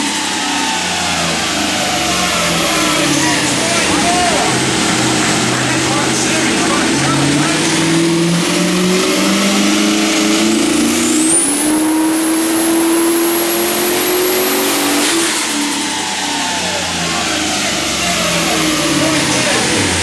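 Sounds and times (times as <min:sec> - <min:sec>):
car engine at full throttle: 0:00.0 - 0:20.0
turbo whistle: 0:10.6 - 0:18.3.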